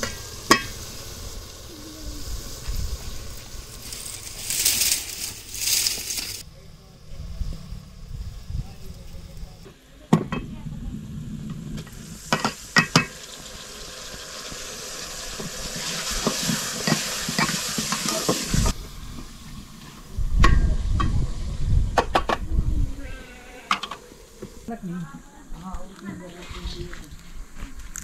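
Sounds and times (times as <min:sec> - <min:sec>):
okra sizzling in a pot: 0:00.0 - 0:06.4, 0:10.9 - 0:28.0
low rumble: 0:10.4 - 0:12.3.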